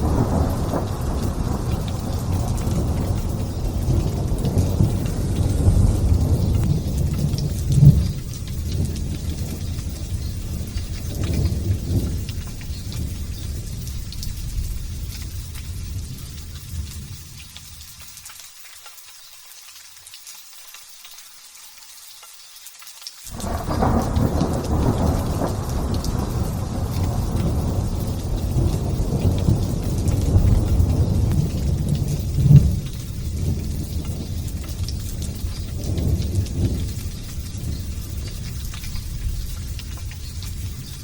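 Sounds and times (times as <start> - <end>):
thunder rumbling: 0.0 - 17.4, 23.3 - 41.0
light rain hissing: 0.0 - 41.0.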